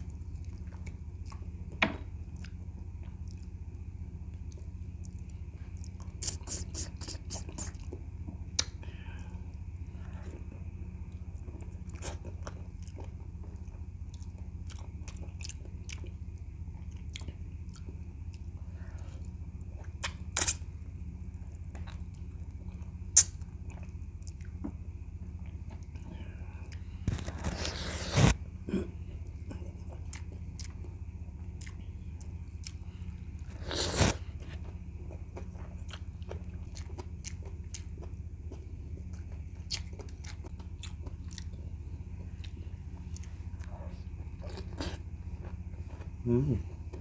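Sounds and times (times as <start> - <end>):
steady low hum: 0.0 - 47.0
wet chewing: 4.4 - 8.8, 11.1 - 18.5, 29.2 - 45.6.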